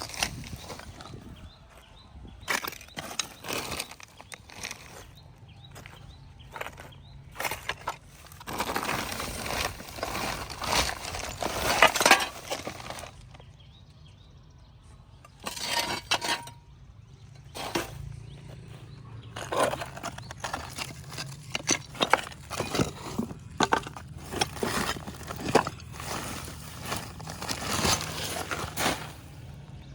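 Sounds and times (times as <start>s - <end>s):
cement chipping clinks and scrapes: 7.5s - 13.4s, 15.3s - 16.6s, 17.4s - 18.2s, 19.3s - 29.5s.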